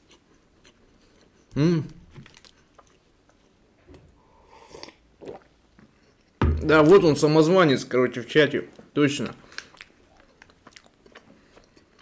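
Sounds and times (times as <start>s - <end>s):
person humming mm: 1.6s - 1.9s
mouth clicks and smacks: 4.8s - 6.4s
wet chewing: 9.5s - 12.0s.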